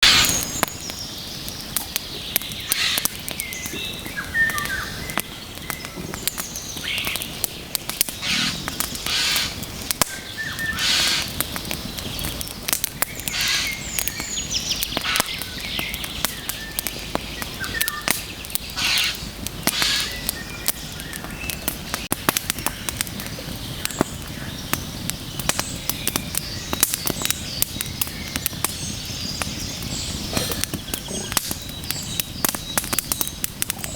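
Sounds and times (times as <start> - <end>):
hissing flare-ups: 0.0 - 14.3, 25.0 - 33.9
bonfire crackling and popping: 0.0 - 33.9.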